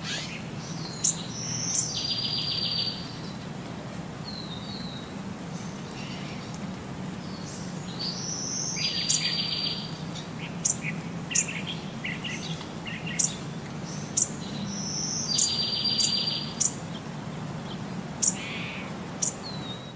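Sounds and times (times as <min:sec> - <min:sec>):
bird chirps: 0:00.0 - 0:03.1, 0:08.0 - 0:16.8, 0:18.2 - 0:19.9.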